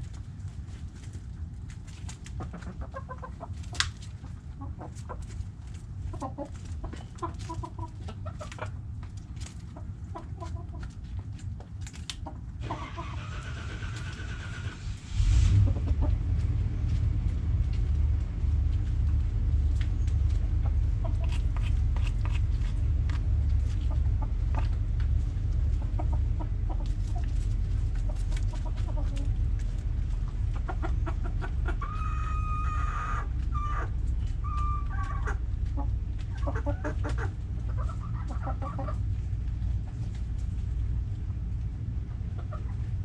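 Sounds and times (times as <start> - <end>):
chickens clucking: 0.0 - 43.0
low rumble: 13.8 - 43.0.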